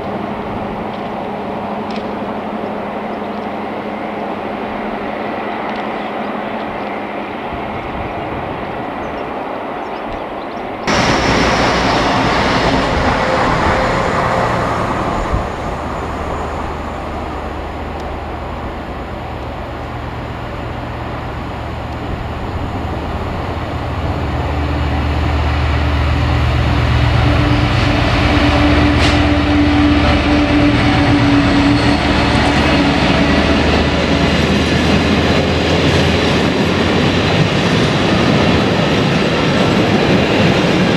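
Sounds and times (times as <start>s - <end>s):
train running on rails: 0.0s - 40.9s
locomotive engine drone: 10.9s - 40.9s.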